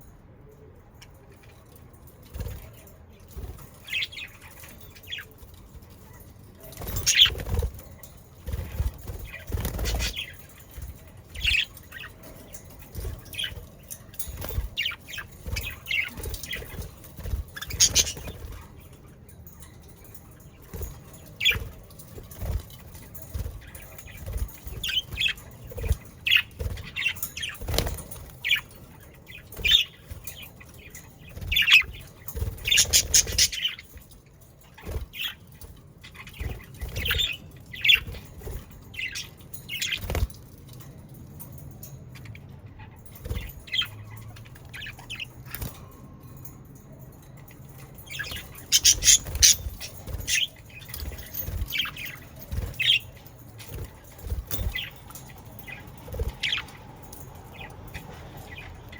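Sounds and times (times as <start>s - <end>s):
wing flutters: 6.6s - 18.8s, 48.1s - 57.2s
budgerigars chirping: 17.6s - 18.3s, 32.6s - 33.7s, 48.1s - 53.2s.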